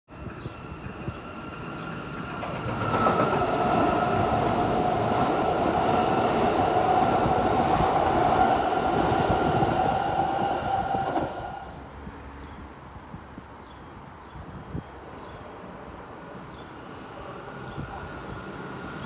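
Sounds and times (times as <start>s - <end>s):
train rail and wheel noise: 0.1s - 13.4s, 14.5s - 19.0s
steady train whine: 0.2s - 11.9s.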